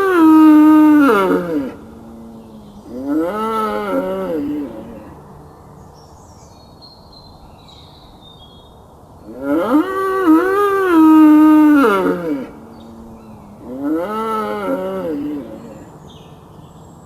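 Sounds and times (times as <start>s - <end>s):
long drawn-out animal calls: 0.0s - 5.4s, 9.2s - 16.2s.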